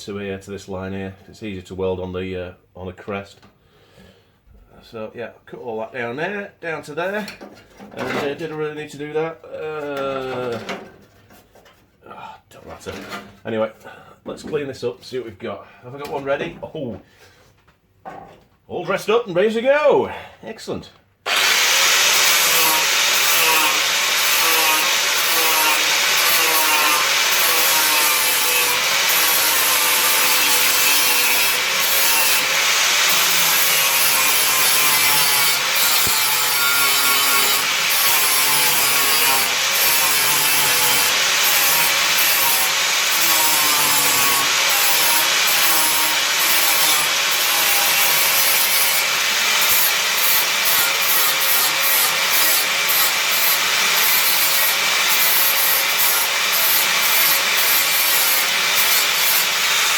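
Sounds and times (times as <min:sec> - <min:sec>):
angle grinder on sheet steel: 0:21.3 - 0:59.9.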